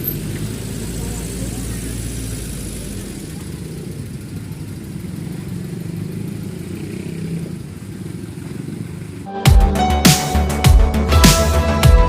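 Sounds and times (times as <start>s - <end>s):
vehicle engine rumbling: 0.0s - 12.0s
loud electronic music: 9.3s - 12.0s.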